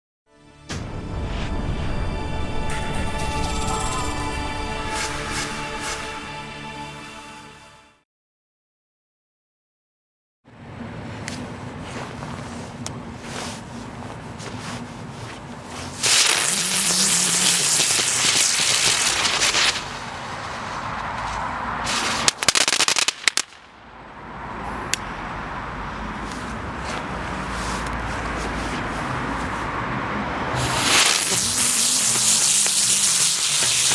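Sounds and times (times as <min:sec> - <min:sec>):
firework crackling: 0:15.9 - 0:23.7, 0:30.6 - 0:33.9
spinner firework hissing: 0:16.0 - 0:21.0, 0:21.8 - 0:23.5, 0:30.6 - 0:33.9.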